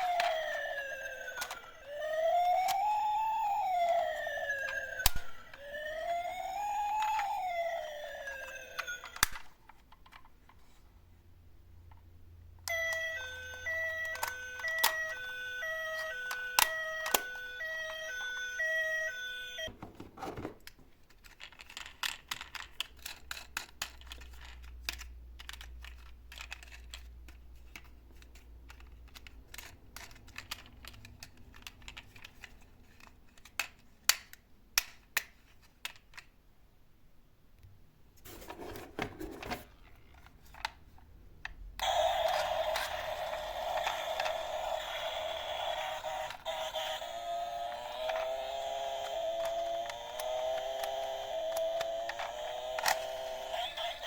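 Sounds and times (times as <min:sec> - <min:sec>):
two-tone hi-lo siren: 0:00.0 - 0:09.2, 0:12.7 - 0:19.7, 0:41.8 - 0:54.0
wailing siren: 0:00.0 - 0:09.3, 0:12.7 - 0:19.7, 0:41.8 - 0:54.0.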